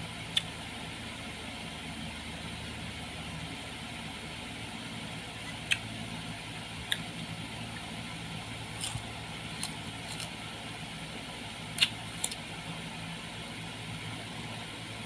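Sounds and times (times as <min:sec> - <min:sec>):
electric fan humming: 0:00.0 - 0:15.0
crunching raw fruit: 0:05.4 - 0:12.7.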